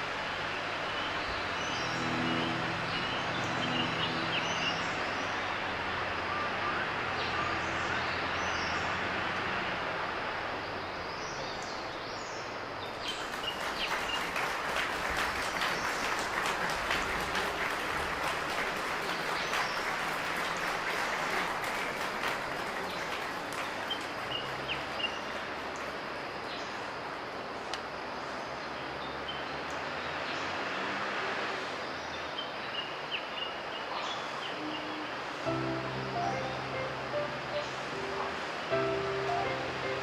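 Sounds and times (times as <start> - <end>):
steady outdoor noise: 0.0 - 40.0.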